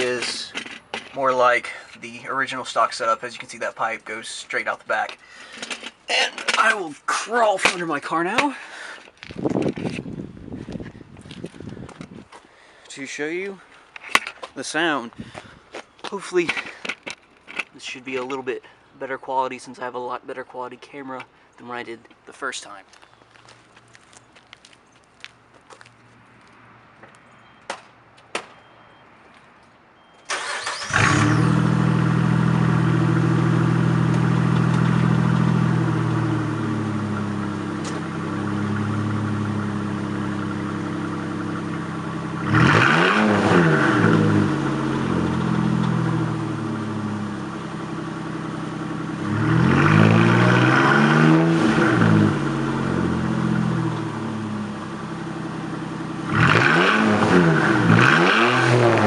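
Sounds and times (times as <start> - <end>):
car engine cranking and idling: 0.0 - 18.8, 30.2 - 59.0
engine revving: 30.3 - 59.0.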